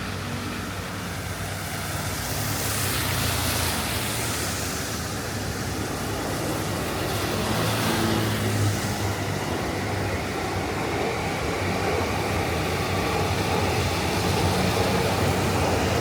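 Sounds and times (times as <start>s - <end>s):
tyre hiss on wet road: 0.0s - 16.0s.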